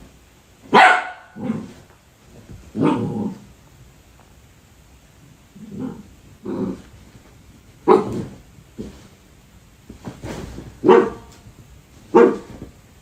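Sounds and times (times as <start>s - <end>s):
dog barking: 0.7s - 1.7s, 7.8s - 8.3s, 10.8s - 11.3s, 12.1s - 12.6s.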